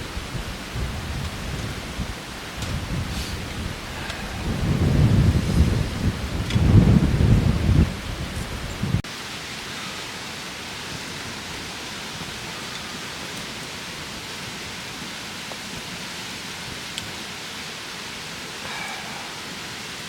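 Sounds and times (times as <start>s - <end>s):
steady rushing noise: 0.0s - 9.0s
wind buffeting microphone: 0.0s - 9.0s.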